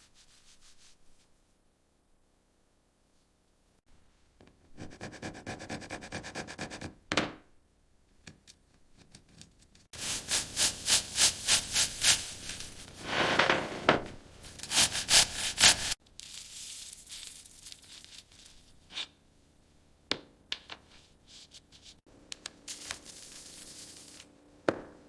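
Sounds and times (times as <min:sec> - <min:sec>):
hand sanding strokes: 0:10.0 - 0:13.8, 0:14.4 - 0:16.0.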